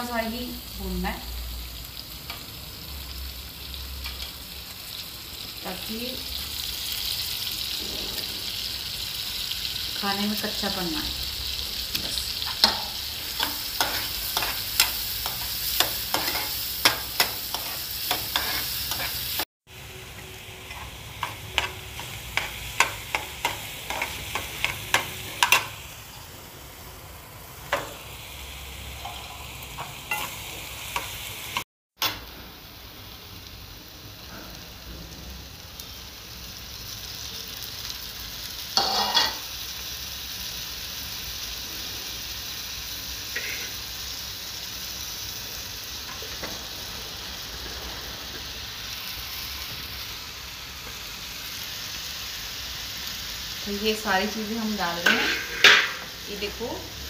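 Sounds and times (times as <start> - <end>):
onions sizzling in a pan: 0.0 - 57.0.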